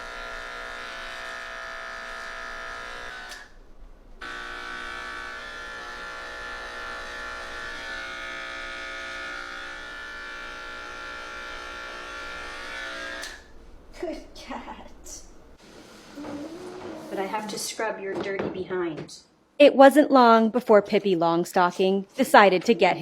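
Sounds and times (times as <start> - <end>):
electric clippers buzzing: 0.0 - 3.6, 4.2 - 13.5.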